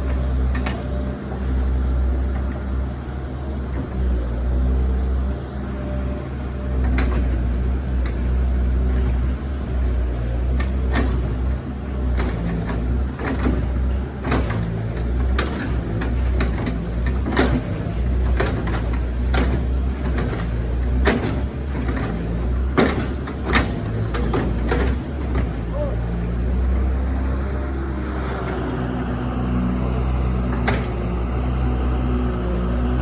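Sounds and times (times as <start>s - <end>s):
excavator diesel engine running: 0.0s - 33.0s
sharp knocks and clanks: 10.6s - 25.7s.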